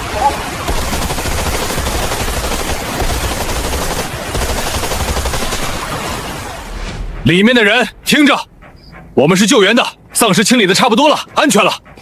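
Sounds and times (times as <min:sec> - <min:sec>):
automatic gunfire: 0:00.4 - 0:06.3.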